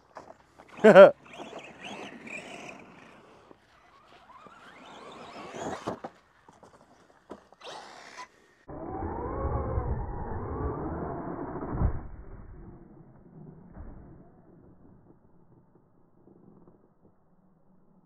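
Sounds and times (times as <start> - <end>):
rc truck motor whining: 0.7 - 6.4, 7.2 - 13.4.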